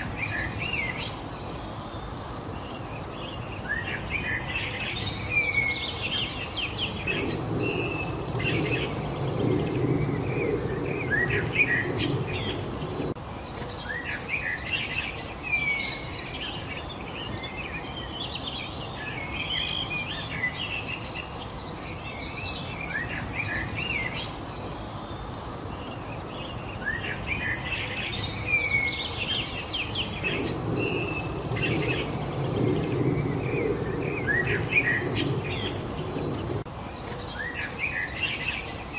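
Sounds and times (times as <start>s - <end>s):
songbirds chirping: 0.0s - 38.9s
low rushing noise: 3.9s - 13.3s, 27.0s - 36.9s.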